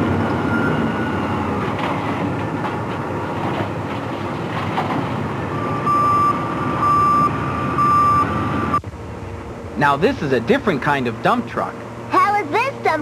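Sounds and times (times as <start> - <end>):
construction machine engine rumble: 0.0 - 13.0
reversing alarm beeping: 0.3 - 1.6, 5.4 - 8.8.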